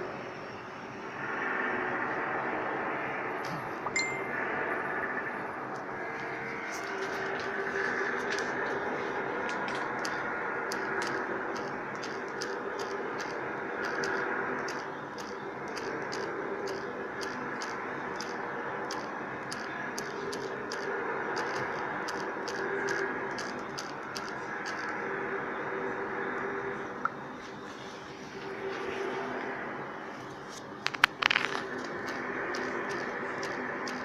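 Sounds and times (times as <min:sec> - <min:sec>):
loud droning hum: 0:00.0 - 0:34.0
high sharp ticking: 0:05.8 - 0:25.0, 0:31.0 - 0:34.0.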